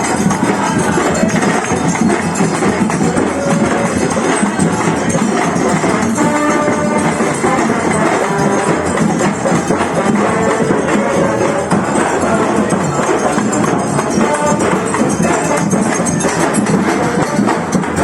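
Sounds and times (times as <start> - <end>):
hand percussion beat: 0.0 - 18.0
held notes: 0.0 - 18.0.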